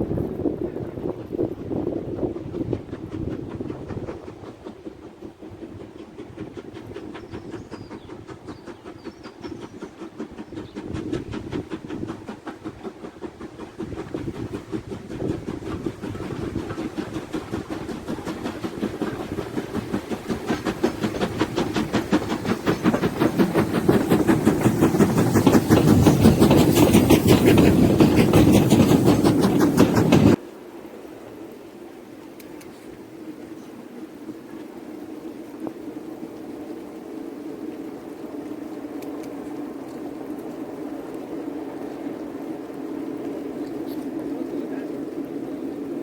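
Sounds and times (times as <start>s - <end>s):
steam train rhythmic clatter: 0.0s - 46.0s.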